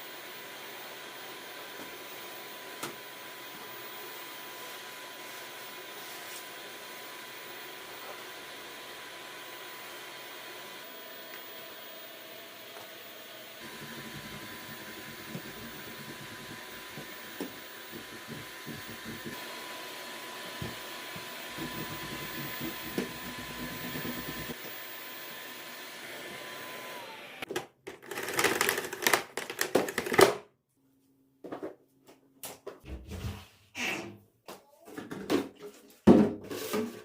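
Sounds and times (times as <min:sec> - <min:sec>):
appliance motor whirring: 0:00.1 - 0:30.2
loud clattering and knocking: 0:21.5 - 0:24.6.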